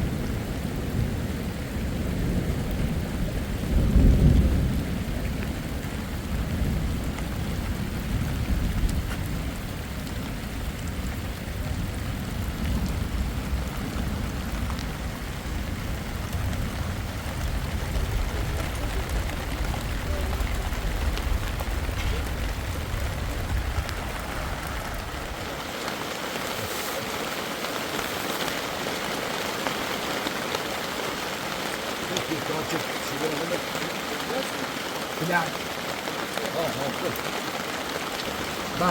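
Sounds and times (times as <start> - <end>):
heavy rain falling: 0.0 - 38.9
low rumble: 16.2 - 25.6.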